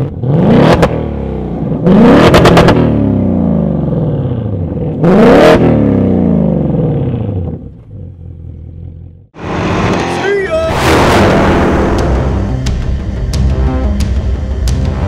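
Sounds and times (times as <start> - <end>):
engine revving on a dyno: 0.0 - 3.6, 5.0 - 6.4, 9.4 - 12.7.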